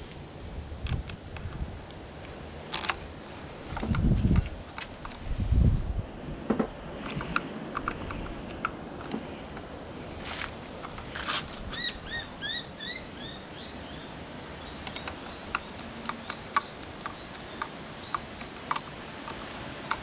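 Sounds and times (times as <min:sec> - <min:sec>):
bird chirping: 0:11.7 - 0:18.7.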